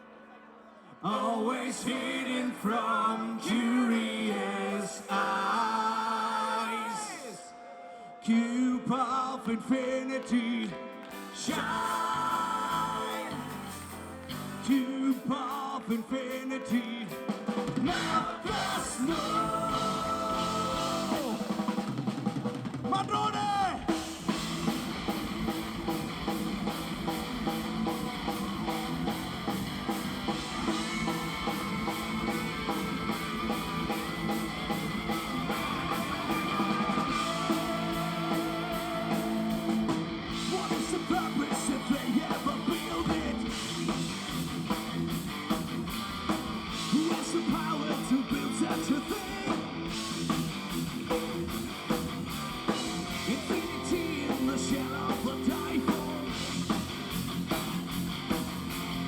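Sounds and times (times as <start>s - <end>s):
bass guitar: 11.5s - 14.8s, 17.8s - 22.8s, 23.5s - 59.0s
fast drums: 17.1s - 59.0s
distorted electric guitars: 17.7s - 59.0s.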